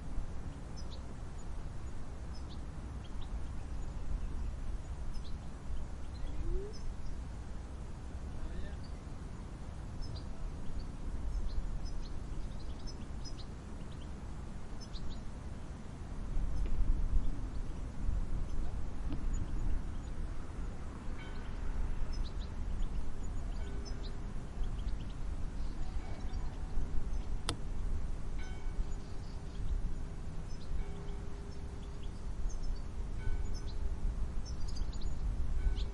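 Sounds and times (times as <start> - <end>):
faint steady hum: 0.0 - 35.9
low rumbling wind: 0.0 - 35.9
sharp click: 27.4 - 27.6.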